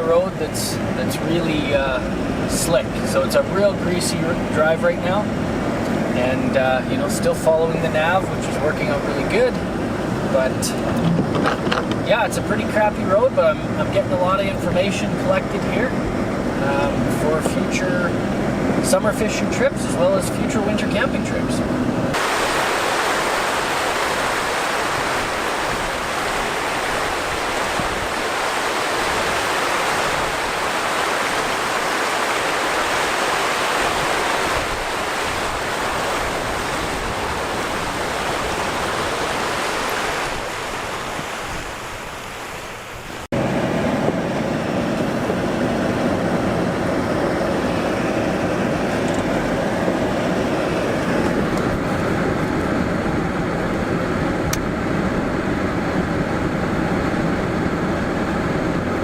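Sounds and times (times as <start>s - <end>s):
road and engine drone: 0.0s - 59.0s
tyres hissing on wet road: 22.1s - 53.6s.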